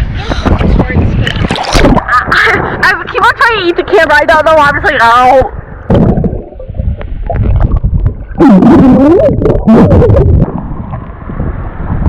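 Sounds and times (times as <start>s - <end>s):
water and wind rumble: 0.0s - 12.0s.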